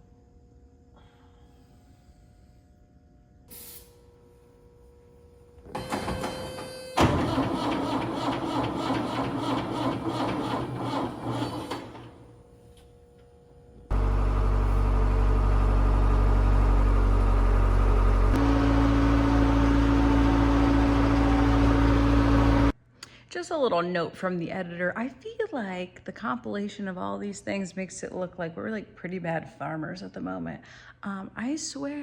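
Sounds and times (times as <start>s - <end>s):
large engine running loudly: 13.9s - 22.7s.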